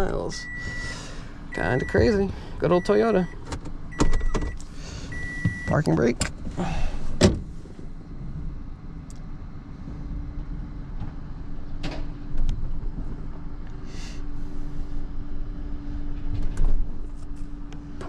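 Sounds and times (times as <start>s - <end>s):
vehicle idling rumble: 0.0s - 8.7s
steady hum: 0.0s - 18.0s.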